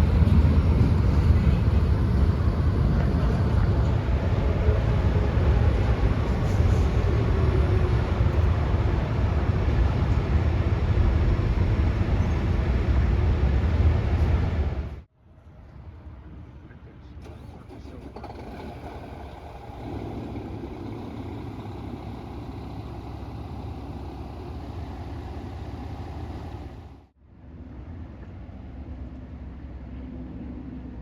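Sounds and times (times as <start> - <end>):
freight train rolling past: 0.0 - 15.0, 18.1 - 27.1.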